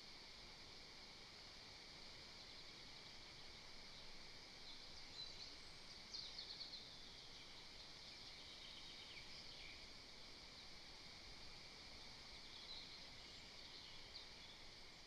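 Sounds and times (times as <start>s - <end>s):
steady hiss: 0.0s - 15.0s
songbird calls and trills: 2.2s - 10.8s, 11.9s - 15.0s.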